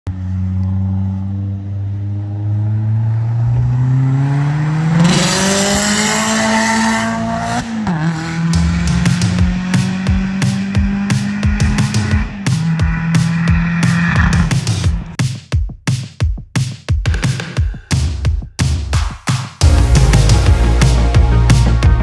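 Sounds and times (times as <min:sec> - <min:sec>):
car engine accelerating: 0:00.1 - 0:15.2
electronic music with heavy beat: 0:07.3 - 0:22.0.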